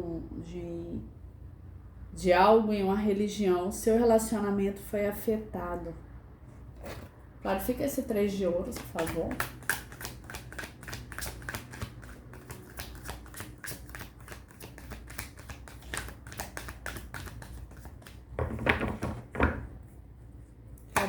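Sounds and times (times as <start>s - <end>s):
cards shuffled by hand: 8.6s - 18.3s
card rustle: 8.7s - 18.2s.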